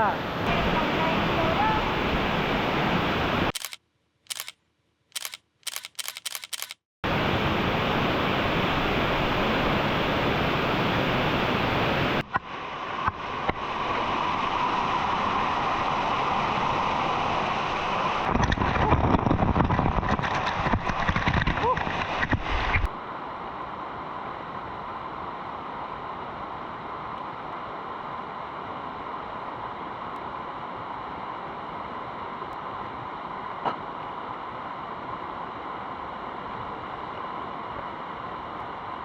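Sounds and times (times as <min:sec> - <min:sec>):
camera shutter clicks: 0:03.6 - 0:04.6, 0:05.2 - 0:06.8.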